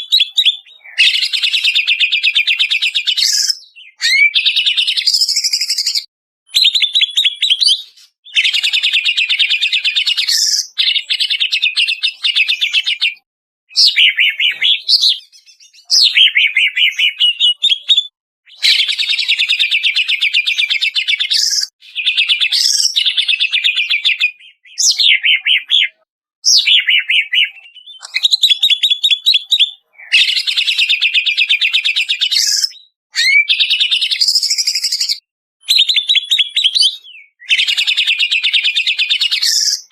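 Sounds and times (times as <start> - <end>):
bird chattering trills and whistles: 0.0 - 39.9.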